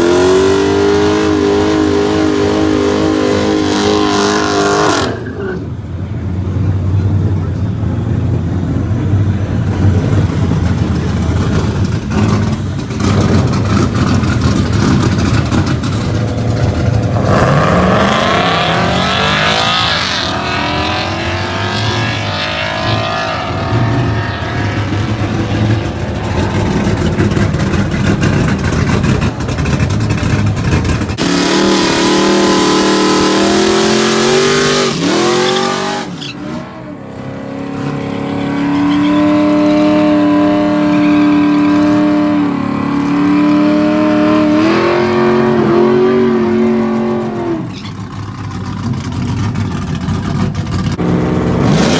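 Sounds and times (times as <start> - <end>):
truck engines at full throttle: 0.0 - 51.9.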